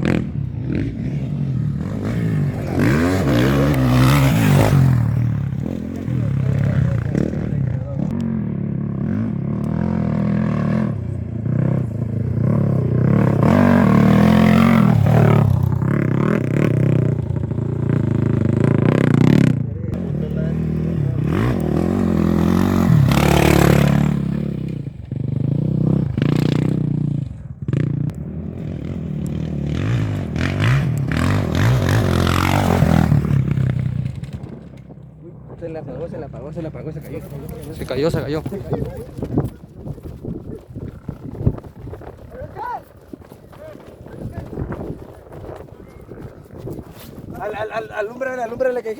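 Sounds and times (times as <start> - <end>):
motorcycle engines revving: 0.0 - 48.9.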